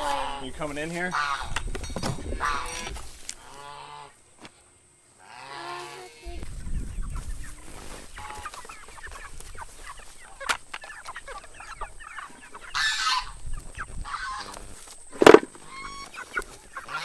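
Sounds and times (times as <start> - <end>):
harsh chicken call: 0.0 - 1.6, 2.4 - 4.2, 5.2 - 17.0
chickens clucking: 0.0 - 17.0.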